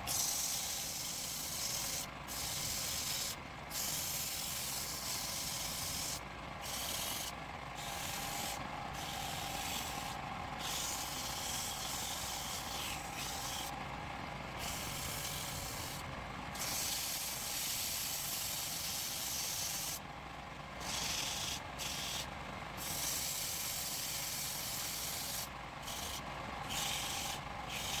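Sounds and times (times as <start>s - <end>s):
wood lathe tool scraping: 4.4s - 13.7s, 23.7s - 28.0s
wood lathe running: 7.9s - 13.8s, 20.8s - 22.2s, 23.7s - 28.0s.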